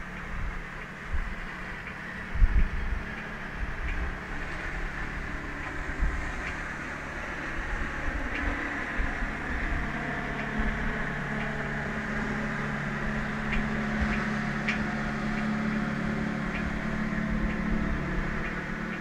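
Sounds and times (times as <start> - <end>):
faint ticks: 0.0 - 6.7, 7.6 - 19.0
machine hum: 0.0 - 19.0.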